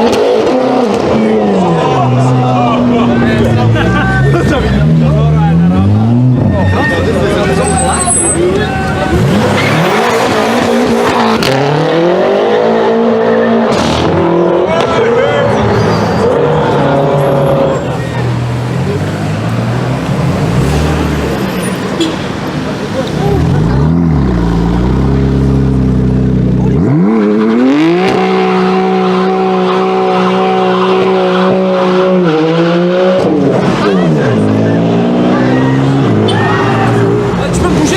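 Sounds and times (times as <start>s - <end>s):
car engine revving: 0.0s - 37.9s
sports car engine accelerating: 23.0s - 37.9s.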